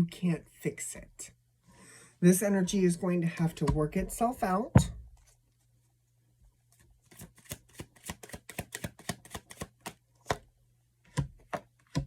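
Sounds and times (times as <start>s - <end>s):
cards tapping and flicking: 7.1s - 10.5s.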